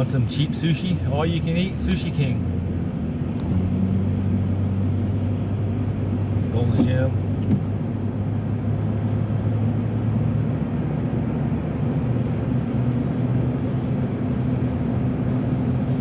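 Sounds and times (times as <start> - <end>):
car engine drone: 0.0 - 16.0
tyre and road noise: 0.0 - 16.0.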